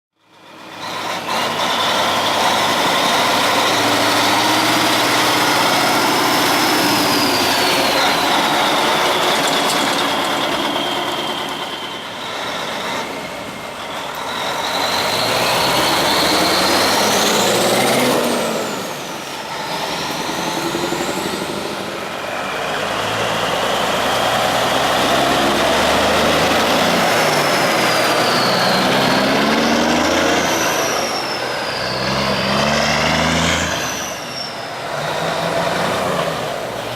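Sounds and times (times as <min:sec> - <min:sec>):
diesel trucks driving past: 0:00.2 - 0:36.9.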